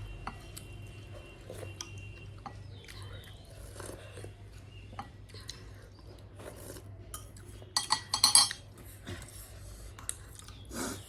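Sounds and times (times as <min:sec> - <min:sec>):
metal spoon scraping a dish: 0:07.7 - 0:08.7.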